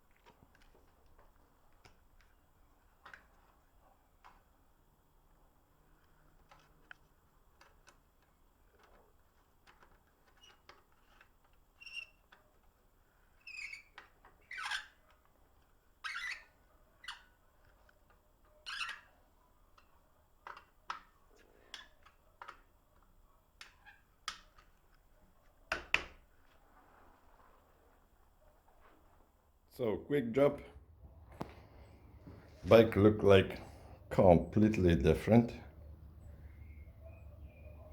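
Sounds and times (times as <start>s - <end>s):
faint clicks and knocks: 5.8s - 12.8s, 30.7s - 32.8s
brief squeak: 11.8s - 12.2s, 13.4s - 15.0s, 16.0s - 17.3s, 18.6s - 19.2s.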